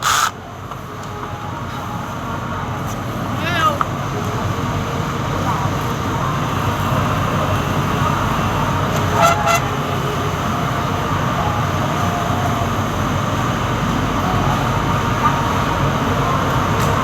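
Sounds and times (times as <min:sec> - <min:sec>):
short horn toots: 0:09.0 - 0:09.8.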